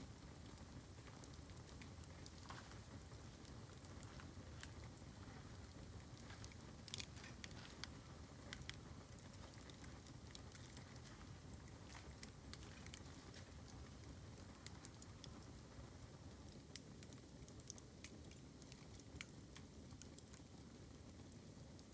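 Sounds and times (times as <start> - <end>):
bamboo crackling and popping: 0.0 - 21.9
low fire rumble: 0.0 - 21.9.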